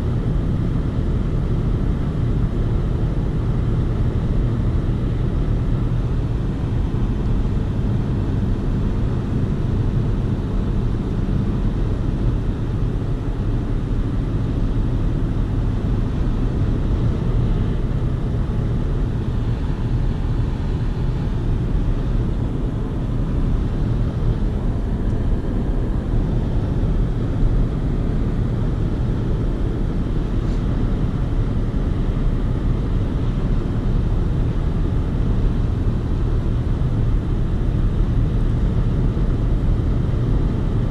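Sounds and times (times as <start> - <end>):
road and engine noise in cab: 0.0 - 40.9.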